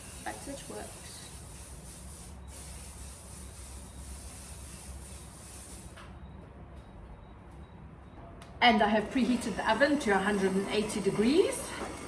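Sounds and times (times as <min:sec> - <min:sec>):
cooking spray hissing: 0:00.0 - 0:06.0
electric hand beater humming: 0:09.2 - 0:12.0.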